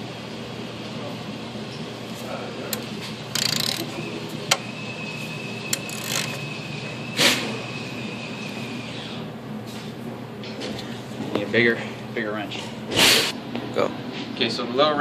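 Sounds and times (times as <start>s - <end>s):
shop ventilation hum: 0.0s - 15.0s
socket wrench clicking: 3.4s - 3.9s, 5.7s - 6.4s.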